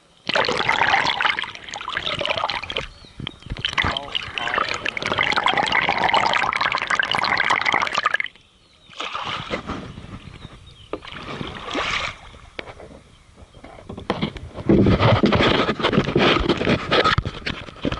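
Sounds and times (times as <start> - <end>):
paddle strokes splashing: 0.3 - 6.6, 8.9 - 13.0.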